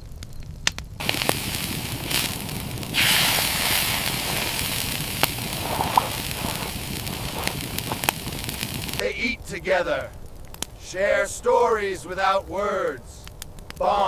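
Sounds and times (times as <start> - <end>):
campfire crackling: 0.0 - 14.0
rushing hiss: 1.0 - 9.1.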